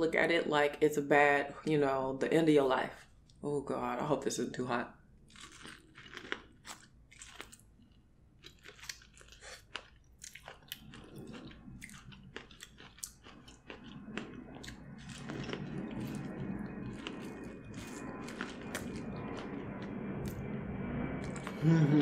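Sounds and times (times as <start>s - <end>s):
chewing corn with wet crunches: 5.3s - 20.5s.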